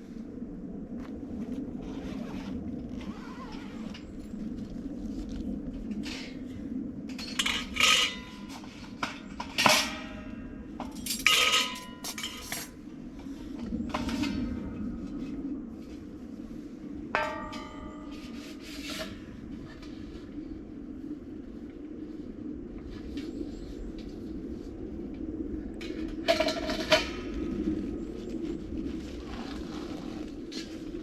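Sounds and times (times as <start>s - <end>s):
metal pieces clanking: 10.9s - 12.7s.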